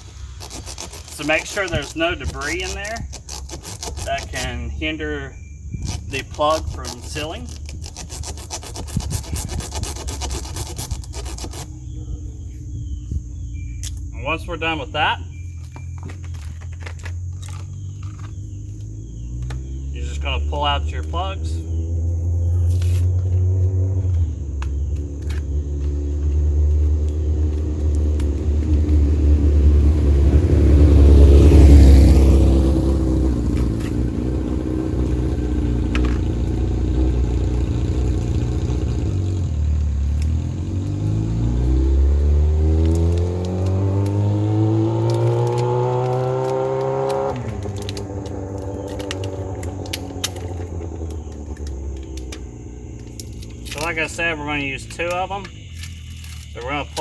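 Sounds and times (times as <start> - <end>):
engine revving: 0.0 - 57.0
vehicle passing close: 0.0 - 57.0.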